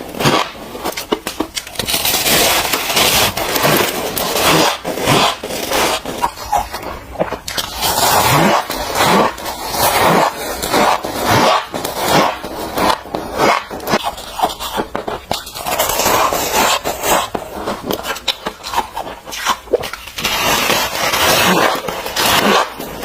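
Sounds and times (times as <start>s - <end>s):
chewing crunchy ice: 13.4s - 21.8s.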